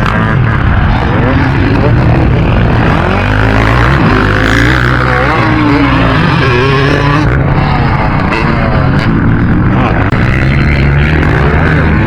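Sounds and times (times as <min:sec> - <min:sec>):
motorbike engines revving: 0:00.0 - 0:12.0.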